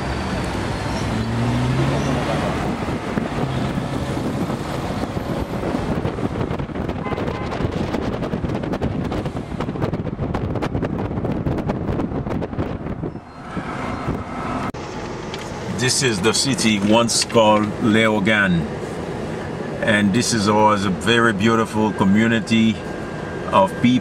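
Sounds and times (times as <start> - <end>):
wind buffeting microphone: 0.0 - 15.7
moving vehicle running: 0.0 - 24.0.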